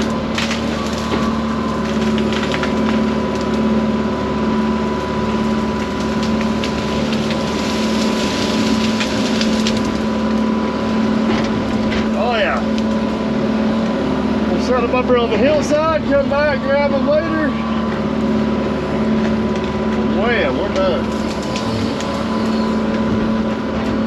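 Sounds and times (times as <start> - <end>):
wood cracking and knocking: 0.0 - 3.8, 5.4 - 10.5, 11.2 - 13.1, 19.2 - 24.0
excavator diesel engine: 0.0 - 24.0
hydraulic whine: 0.0 - 24.0.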